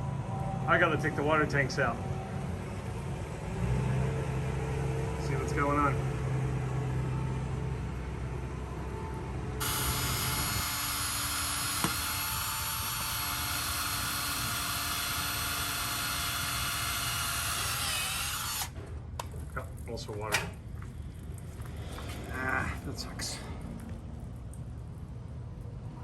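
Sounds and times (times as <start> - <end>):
power drill whining: 9.6 - 18.8.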